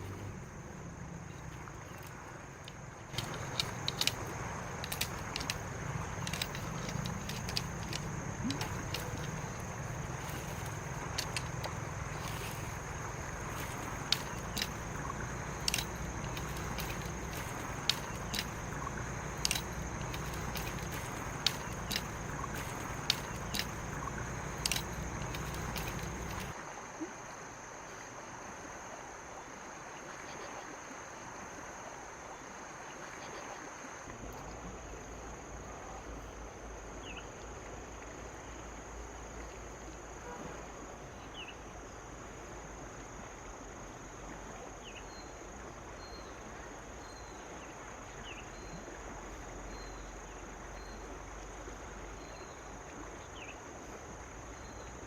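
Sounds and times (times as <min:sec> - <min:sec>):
high insect trill: 0:00.0 - 0:37.2
steady rain hiss: 0:00.0 - 0:55.0.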